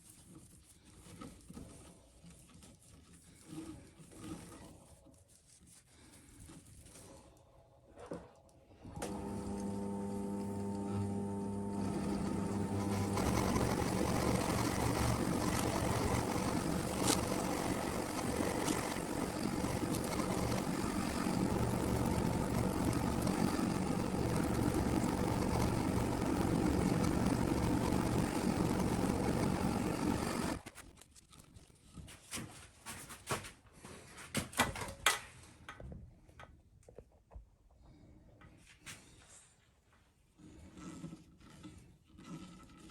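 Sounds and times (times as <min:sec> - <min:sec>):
small electric motor running: 0:09.1 - 0:30.6.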